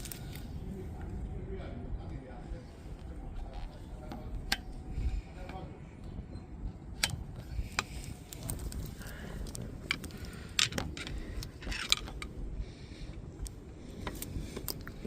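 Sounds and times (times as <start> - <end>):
metal clicks and scrapes: 6.9 - 12.4.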